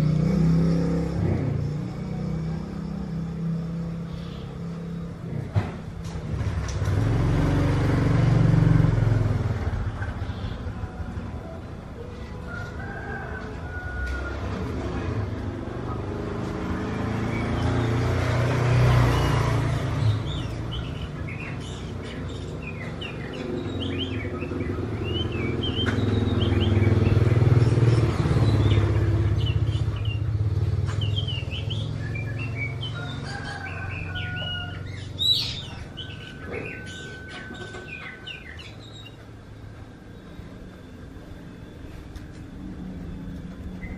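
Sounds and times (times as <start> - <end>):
road traffic rumble: 0.0 - 43.9
bird singing chirps and whistles: 20.0 - 30.3, 30.9 - 33.0, 33.9 - 39.2.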